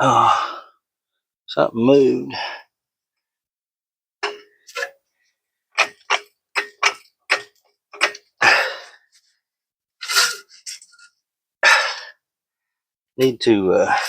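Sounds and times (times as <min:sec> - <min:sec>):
metal-on-metal knocks: 0:04.2 - 0:04.9, 0:05.8 - 0:08.3
scraping sound: 0:10.0 - 0:11.1.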